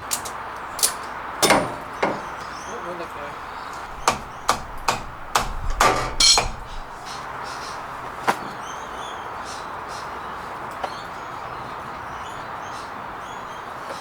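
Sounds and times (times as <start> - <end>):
metal knocks and clanks: 0.1 - 2.6, 3.7 - 7.1.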